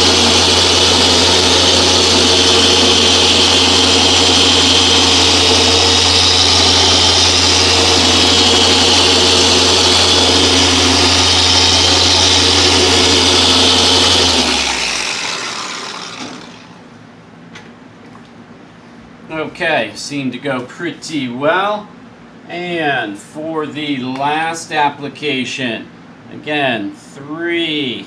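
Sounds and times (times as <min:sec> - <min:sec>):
polisher motor hum and hiss: 0:00.0 - 0:16.8.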